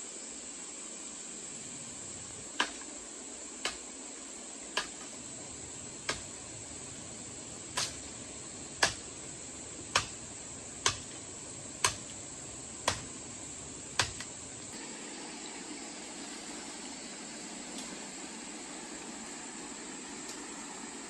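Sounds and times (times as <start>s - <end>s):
sharp knocks: 12.8s - 13.1s.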